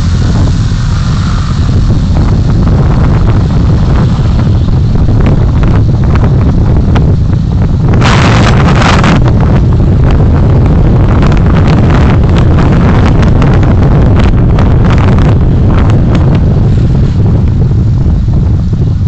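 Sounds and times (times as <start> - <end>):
car driving rumble: 0.0 - 19.0
loud hiss: 0.0 - 19.0
wind noise on microphone: 0.0 - 19.0.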